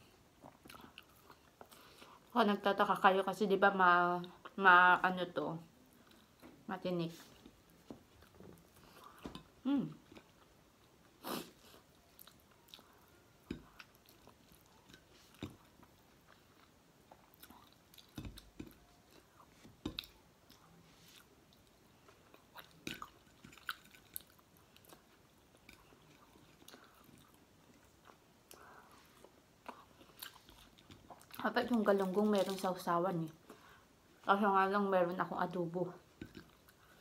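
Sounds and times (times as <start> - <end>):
crunchy chewing of fried fish: 7.3 - 32.8.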